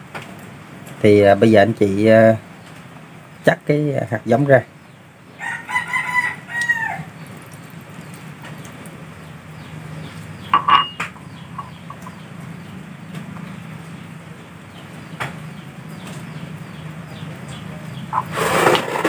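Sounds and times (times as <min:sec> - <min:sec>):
bird calls: 0:04.8 - 0:19.0.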